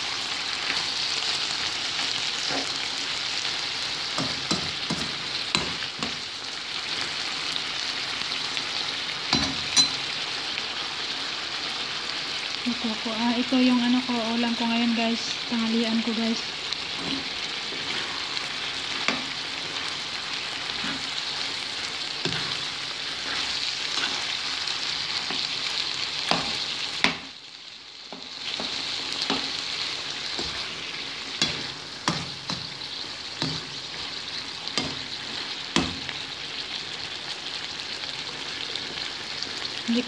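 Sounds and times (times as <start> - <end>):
liver sizzling in a wok: 0.0 - 40.0
metal spoon scraping a pan: 16.8 - 21.4, 22.2 - 26.8.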